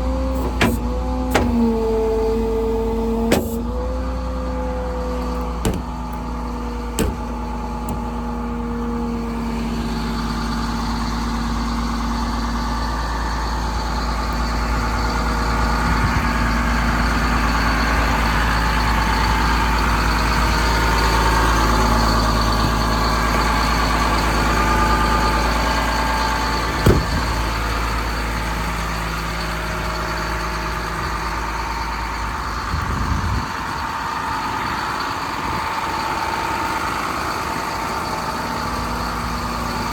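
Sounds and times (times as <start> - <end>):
diesel truck engine running: 0.0 - 39.9
sharp engine knock: 26.8 - 27.2.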